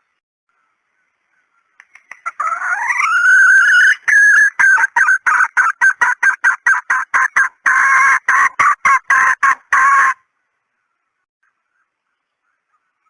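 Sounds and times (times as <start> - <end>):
hen clucking: 2.0 - 10.2.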